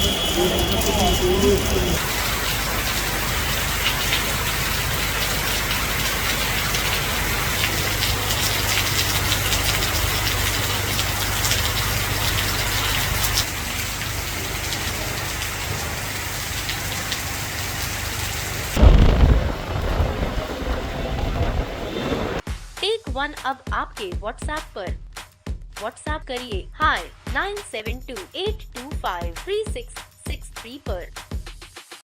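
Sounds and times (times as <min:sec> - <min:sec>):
heavy rain pouring: 0:00.0 - 0:22.4
raindrops ticking on surfaces: 0:00.0 - 0:22.4
loud low-pitched sound: 0:18.8 - 0:22.4.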